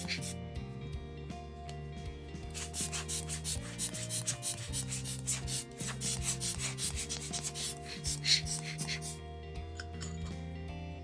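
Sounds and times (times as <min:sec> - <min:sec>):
quick rubbing strokes: 0:00.0 - 0:00.4, 0:02.5 - 0:09.2
background music: 0:00.0 - 0:11.0.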